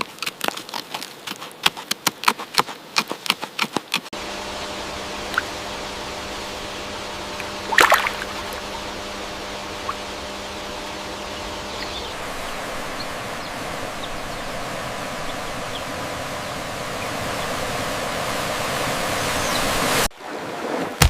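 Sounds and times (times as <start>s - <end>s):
rushing water: 7.2s - 21.0s.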